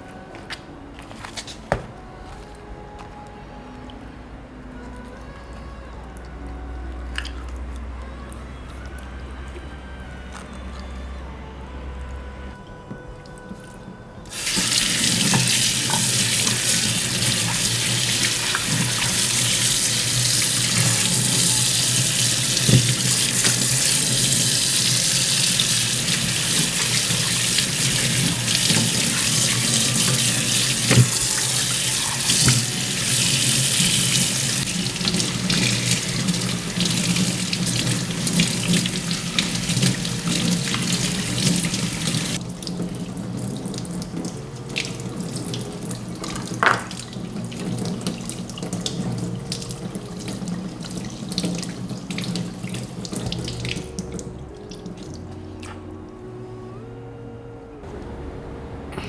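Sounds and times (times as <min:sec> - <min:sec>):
tap water running into sink: 0:14.3 - 0:55.1.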